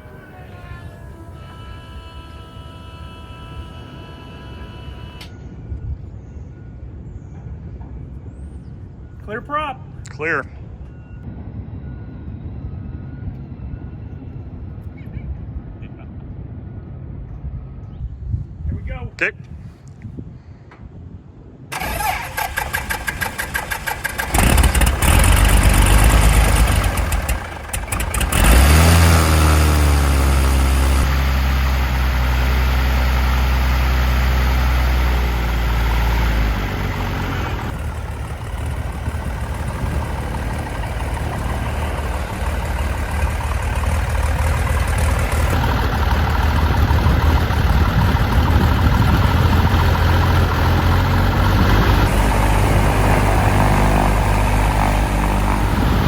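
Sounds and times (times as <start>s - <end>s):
starter cranking: 21.7s - 31.1s
propeller aircraft engine running: 21.7s - 56.0s.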